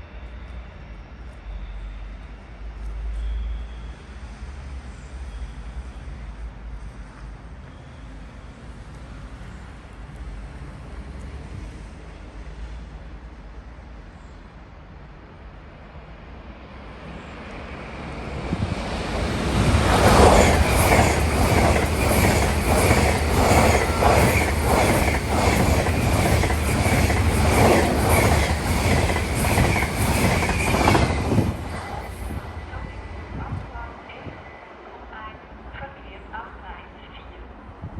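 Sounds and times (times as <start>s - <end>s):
train wheels clickety-clack: 18.5s - 32.4s.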